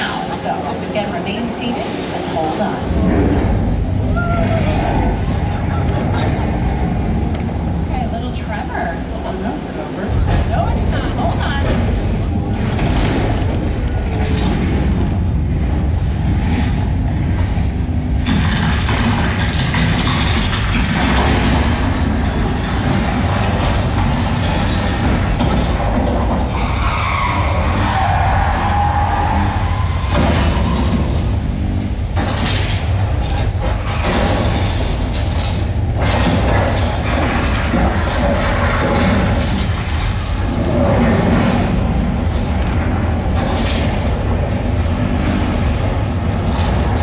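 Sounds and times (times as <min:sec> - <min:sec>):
loud low rumble: 0:00.0 - 0:47.0
mechanical rattling and creaking: 0:00.0 - 0:47.0
loud crashing noise: 0:11.4 - 0:47.0.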